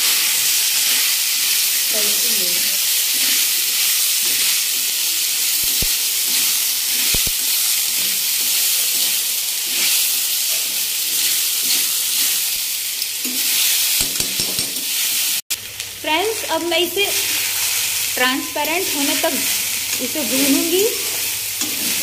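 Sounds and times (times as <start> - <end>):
sago sizzling in oil: 0.0 - 22.0
metal spoon stirring in pan: 5.6 - 12.4, 13.0 - 15.2, 18.4 - 22.0.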